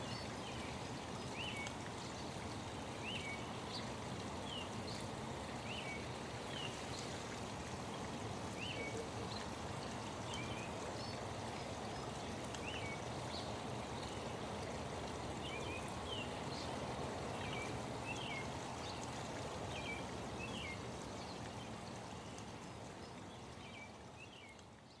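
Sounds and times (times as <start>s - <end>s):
flowing water: 0.0s - 25.0s.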